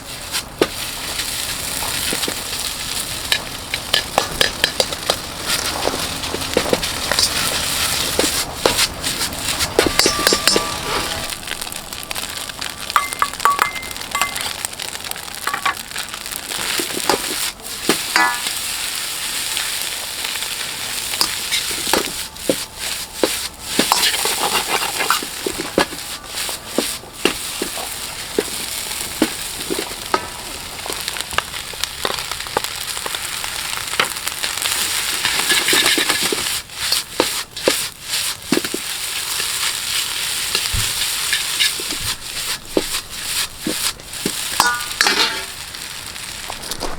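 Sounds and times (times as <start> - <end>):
ladle scraping and clanking on wok: 0.0 - 15.8, 16.5 - 46.9
rice sizzling in a wok: 0.0 - 46.9
metallic ringing of wok: 2.0 - 16.0, 18.0 - 18.6, 44.5 - 45.9.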